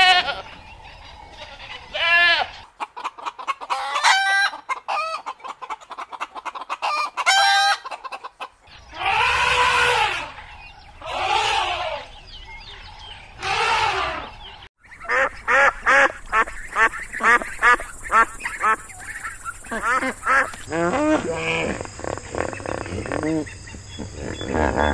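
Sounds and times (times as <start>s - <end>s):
chickens clucking: 1.3s - 10.4s, 14.2s - 24.9s
elephant calling: 13.4s - 14.4s, 17.2s - 24.9s
geese honking: 13.4s - 24.9s.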